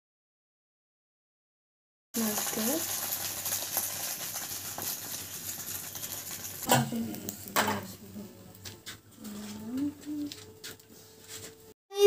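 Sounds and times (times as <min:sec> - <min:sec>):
egg sizzling in a pan: 0:02.2 - 0:07.7.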